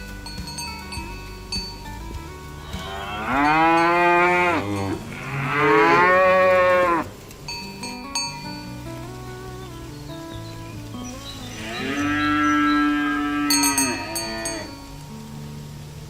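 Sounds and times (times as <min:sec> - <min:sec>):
faint music with chime-like notes: 0:00.0 - 0:16.0
cow mooing: 0:02.6 - 0:07.1, 0:11.6 - 0:14.8.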